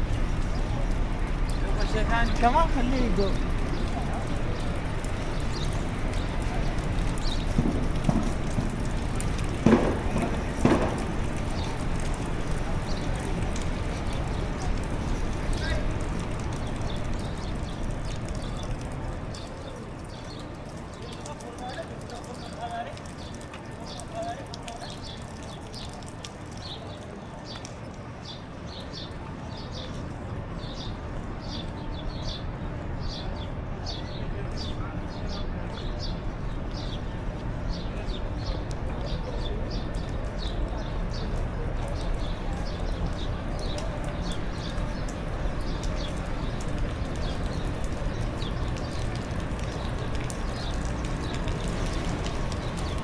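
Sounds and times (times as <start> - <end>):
steady low rumble: 0.0 - 19.3
footsteps on pavement: 0.0 - 32.6, 33.9 - 53.0
small birds chirping: 0.0 - 53.0
outdoor din: 9.6 - 12.1.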